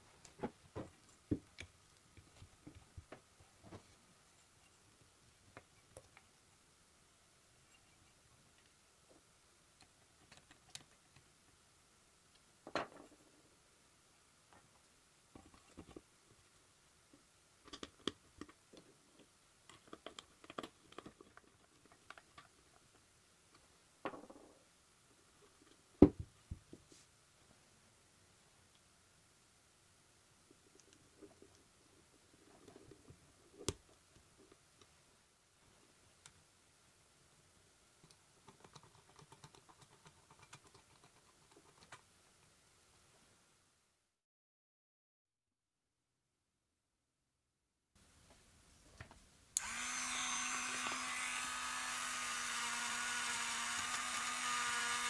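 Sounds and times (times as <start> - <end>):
room hiss: 0.0 - 19.7, 22.4 - 38.4, 48.0 - 55.0
small parts clicking and tapping: 38.0 - 42.1.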